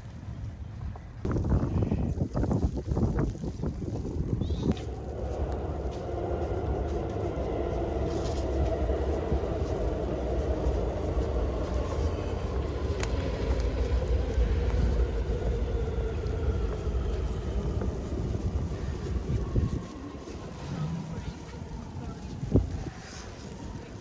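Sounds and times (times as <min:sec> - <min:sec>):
wind buffeting microphone: 0:00.0 - 0:24.0
vehicle engine running: 0:04.7 - 0:19.6.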